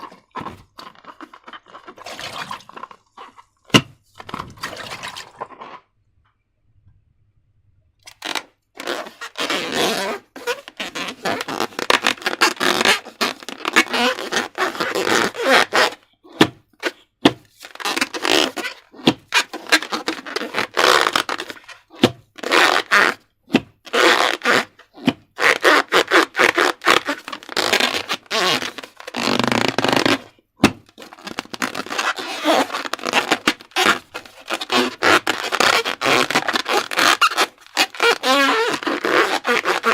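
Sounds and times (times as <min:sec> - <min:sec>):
slime squelching: 0:00.0 - 0:06.0.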